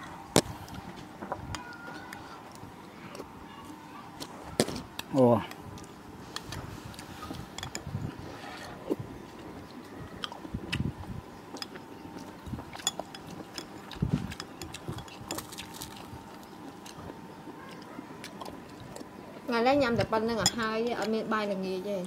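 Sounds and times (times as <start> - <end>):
chewing and biting: 4.2 - 19.2.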